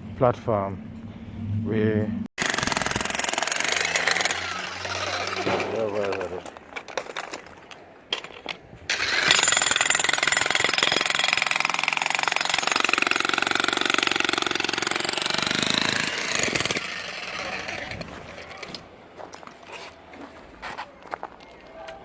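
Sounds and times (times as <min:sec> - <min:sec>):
jackhammer breaking concrete: 0:02.4 - 0:06.5, 0:08.9 - 0:18.8.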